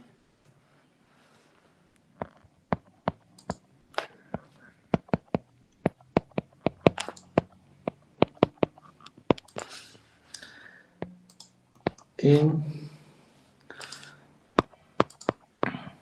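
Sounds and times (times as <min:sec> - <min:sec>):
keyboard typing clicks: 0:02.2 - 0:03.6, 0:04.4 - 0:07.5, 0:08.2 - 0:09.6, 0:10.4 - 0:12.1, 0:13.8 - 0:15.4.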